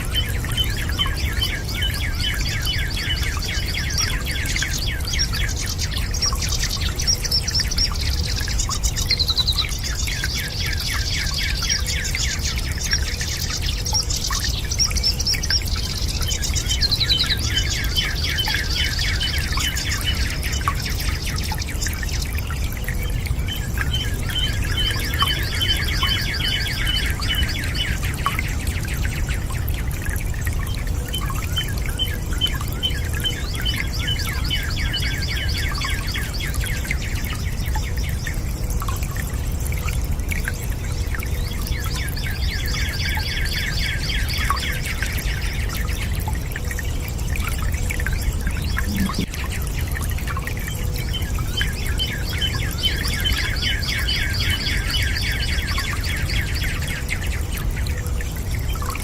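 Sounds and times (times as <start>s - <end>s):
small birds chirping and trilling: 0.0s - 59.0s
low rumbling noise: 48.6s - 49.5s.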